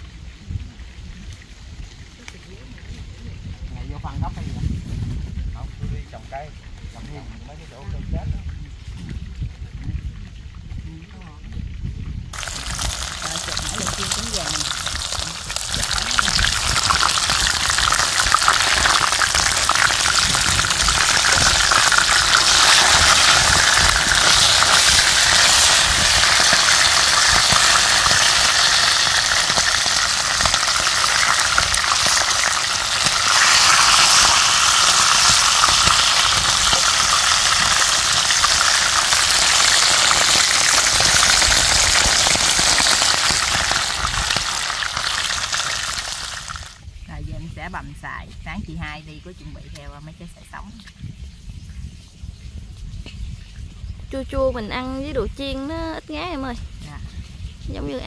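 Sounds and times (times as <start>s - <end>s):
meat sizzling in hot oil: 12.2s - 48.0s.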